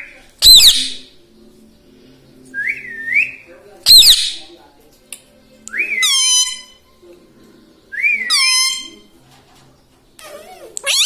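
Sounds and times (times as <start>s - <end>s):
parrot harsh squawk: 6.0s - 6.8s, 8.3s - 9.0s, 10.2s - 11.0s.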